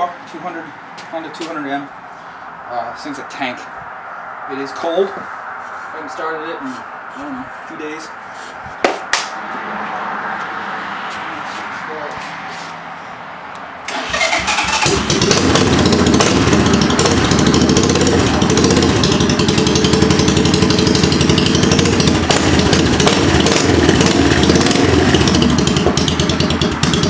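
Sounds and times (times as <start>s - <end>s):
motorcycle engine starting and running: 13.9s - 27.0s.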